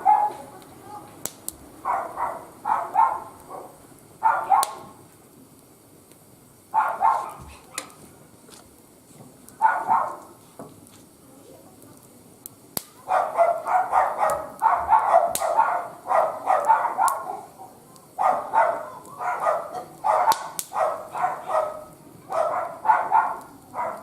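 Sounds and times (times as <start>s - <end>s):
dog barking: 0.0s - 0.4s, 1.8s - 4.8s, 6.8s - 8.0s, 9.6s - 10.3s, 13.0s - 24.0s.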